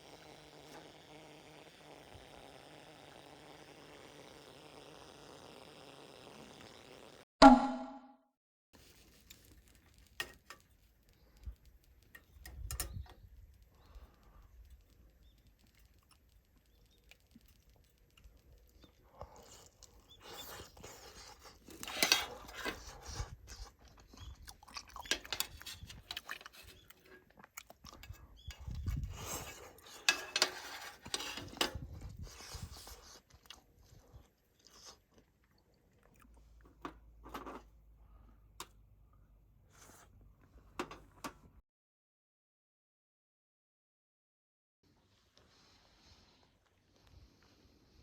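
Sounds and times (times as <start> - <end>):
person chewing crunchy food: 18.8 - 30.0.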